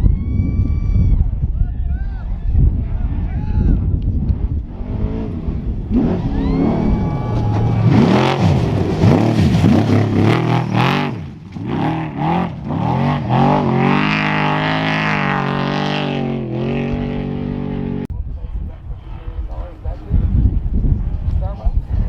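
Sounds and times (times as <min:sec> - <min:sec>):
race truck engine revving: 0:04.1 - 0:18.1.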